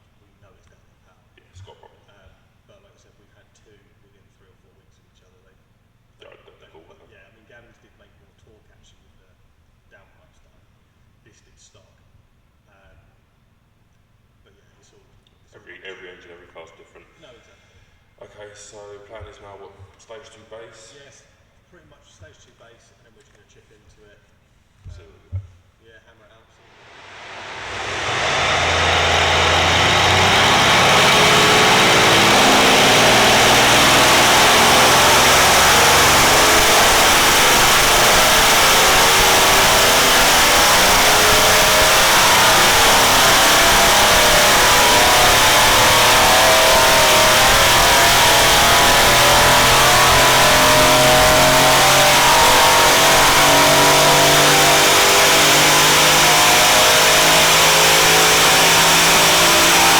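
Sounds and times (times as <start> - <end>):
car engine at full load: 26.7 - 59.9.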